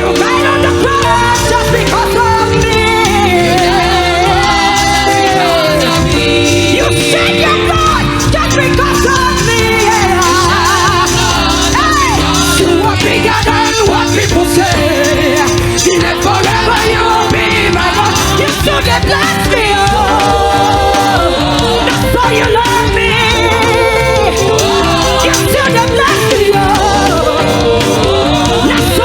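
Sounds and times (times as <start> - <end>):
gospel choir singing: 0.0 - 29.0
instrumental accompaniment: 0.0 - 29.0.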